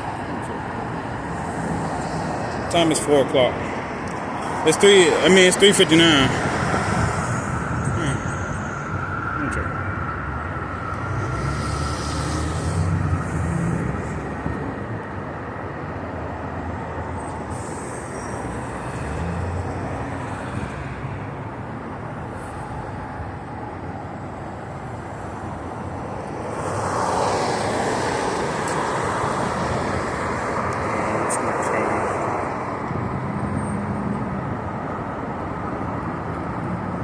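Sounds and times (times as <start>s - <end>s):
road traffic: 0.0s - 37.0s
vehicle passing close: 10.9s - 14.4s.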